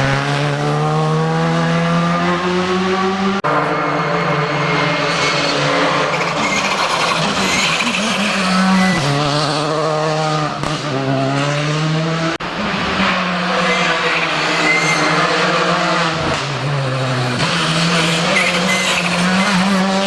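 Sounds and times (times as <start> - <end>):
rally car engine at high revs: 0.0 - 20.0
tyre squeal: 3.5 - 9.5, 13.5 - 15.4, 17.4 - 20.0.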